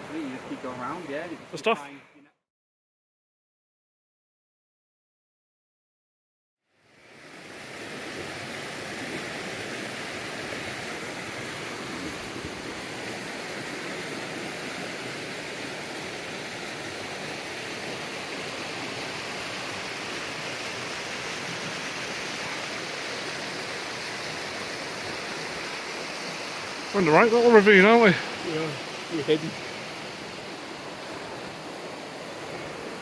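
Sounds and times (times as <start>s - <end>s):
river rushing over rocks: 7.5s - 33.0s.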